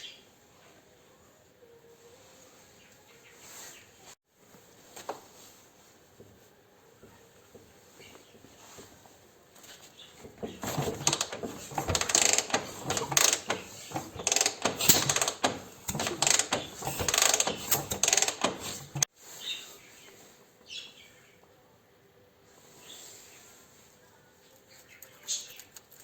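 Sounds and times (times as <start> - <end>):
hand tools clicking and clattering: 10.2 - 19.1.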